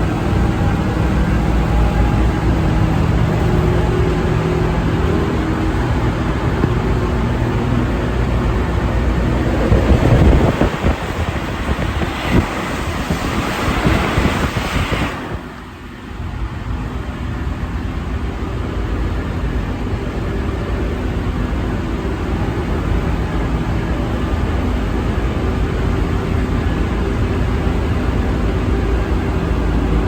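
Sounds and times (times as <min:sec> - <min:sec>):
traction motor hum: 0:00.0 - 0:15.8
loud rushing noise: 0:00.0 - 0:15.9
metro train low rumble: 0:00.0 - 0:30.0.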